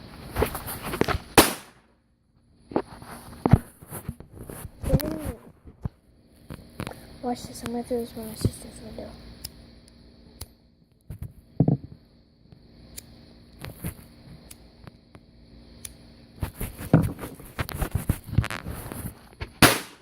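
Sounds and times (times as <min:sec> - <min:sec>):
rustling and scraping handling noises: 0:00.0 - 0:01.4, 0:02.6 - 0:07.6, 0:16.4 - 0:19.6
firecracker bang: 0:01.3 - 0:01.9, 0:19.6 - 0:20.0.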